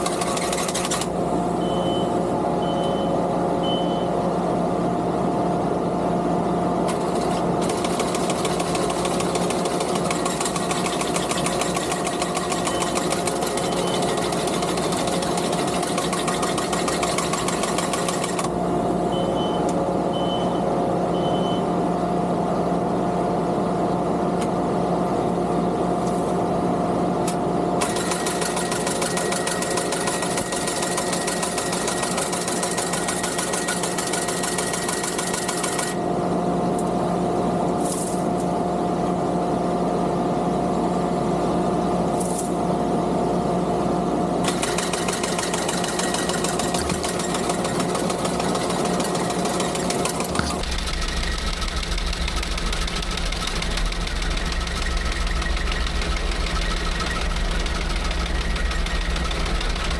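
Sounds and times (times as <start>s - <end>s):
mower cutter clattering: 0.0s - 1.1s, 6.9s - 18.5s, 44.4s - 59.9s
skid steer engine running: 0.0s - 4.2s, 6.6s - 21.6s, 27.8s - 36.9s, 44.4s - 59.9s
short high beeps: 1.6s - 4.2s, 19.2s - 20.6s.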